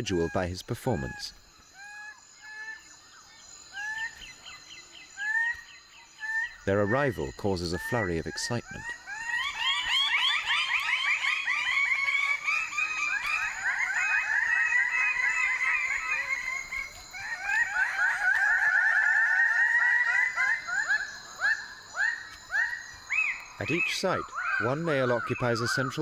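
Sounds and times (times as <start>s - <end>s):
chorus of bird calls: 0.0s - 26.0s.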